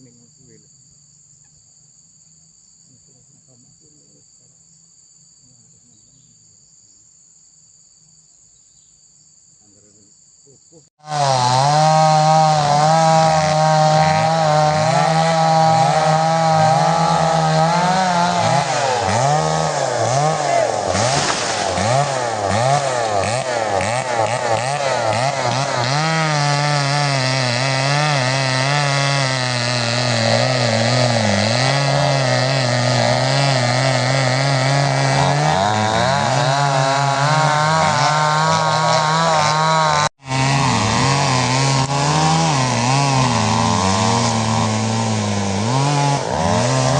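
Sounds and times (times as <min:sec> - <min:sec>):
chainsaw cutting into tree: 0:11.0 - 0:46.9.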